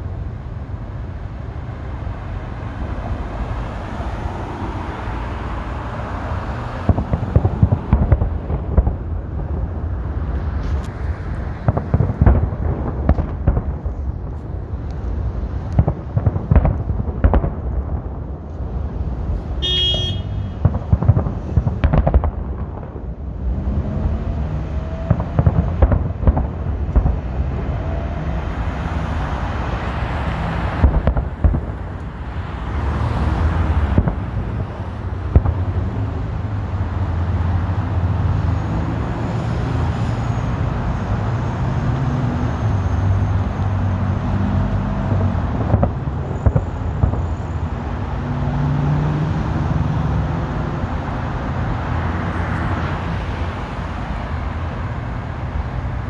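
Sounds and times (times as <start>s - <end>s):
road traffic rumble: 0.0s - 56.0s
fireworks exploding: 5.1s - 37.6s, 39.9s - 48.7s.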